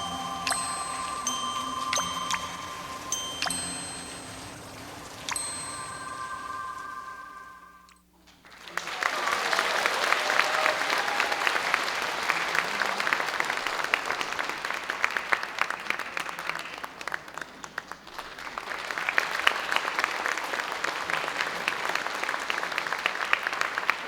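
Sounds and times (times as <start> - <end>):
audience applauding: 8.4 - 24.0.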